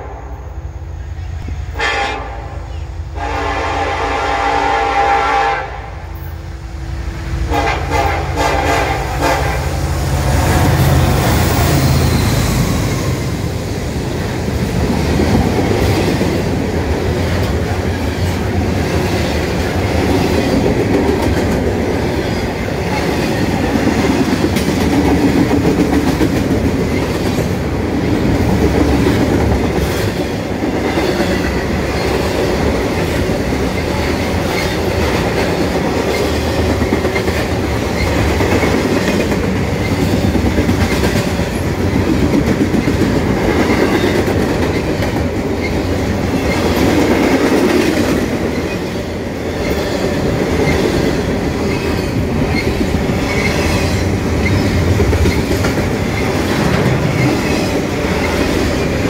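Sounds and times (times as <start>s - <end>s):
locomotive engines rumbling: 0.0s - 59.0s
train wheels on rail: 0.0s - 59.0s
train horn blasts: 1.5s - 6.2s, 7.5s - 9.9s.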